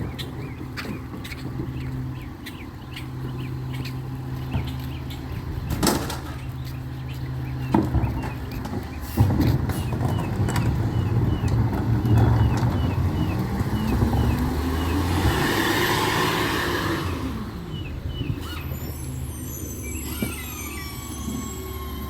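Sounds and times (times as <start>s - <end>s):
diesel truck engine revving: 0.0s - 22.0s.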